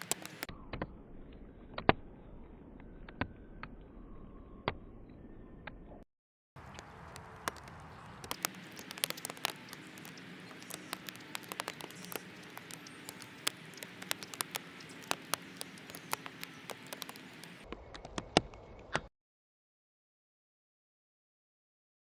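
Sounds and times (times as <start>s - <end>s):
quick irregular clicks and patters: 0.0s - 0.5s, 6.6s - 18.6s
steady hiss: 0.0s - 0.5s, 8.2s - 17.6s.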